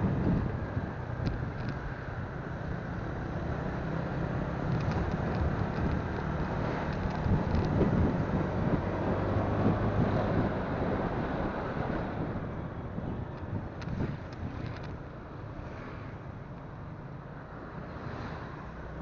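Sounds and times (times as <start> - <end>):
wind on microphone: 0.0 - 15.1.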